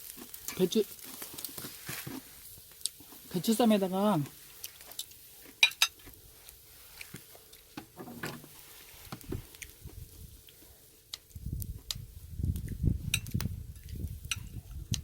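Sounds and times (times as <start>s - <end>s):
muffled thumps and rustling: 1.2s - 2.4s, 7.1s - 10.3s.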